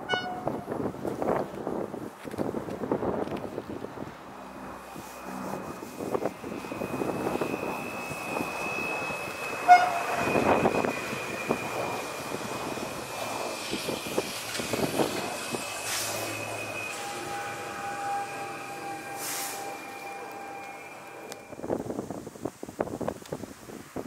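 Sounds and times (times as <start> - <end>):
train horn toot: 0.0 - 0.6, 6.7 - 10.9, 15.8 - 21.6
train wheel and rail noise: 0.0 - 24.0
high whine: 3.3 - 22.3.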